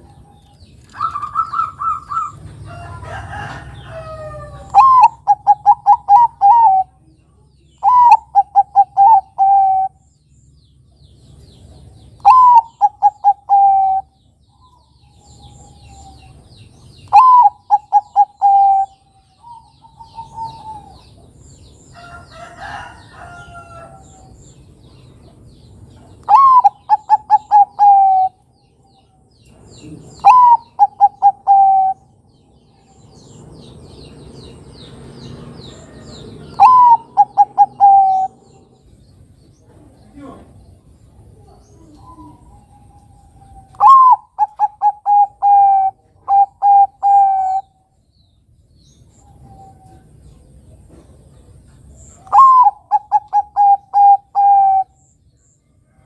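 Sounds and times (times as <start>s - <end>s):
dove cooing: 0.9s - 7.0s, 7.8s - 10.0s, 12.2s - 14.2s, 17.0s - 21.2s, 26.2s - 28.4s, 29.8s - 32.2s, 35.9s - 38.8s, 41.4s - 47.7s, 52.2s - 55.0s.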